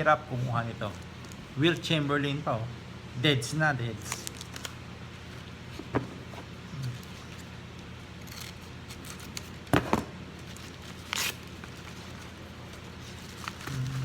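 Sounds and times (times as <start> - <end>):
low steady hum: 0.0 - 14.0
plastic sleeve rustle: 10.4 - 14.0.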